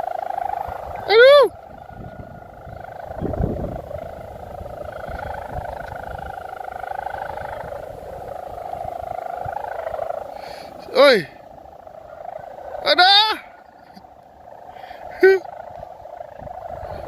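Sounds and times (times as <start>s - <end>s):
kite hummer droning: 0.0s - 17.0s
wind buffeting microphone: 0.0s - 17.0s.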